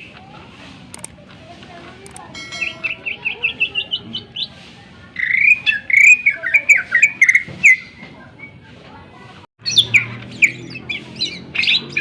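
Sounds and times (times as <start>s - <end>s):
bird singing: 2.4s - 4.6s, 5.2s - 8.6s, 9.6s - 12.0s.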